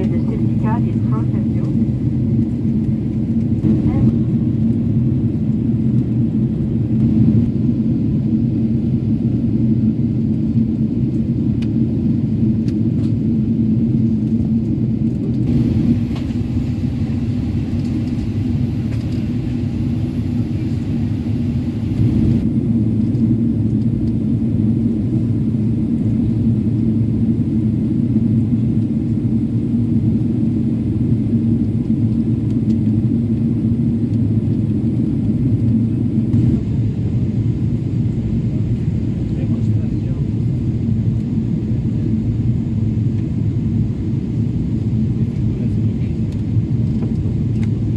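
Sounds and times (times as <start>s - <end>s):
airplane cabin drone: 0.0s - 47.9s.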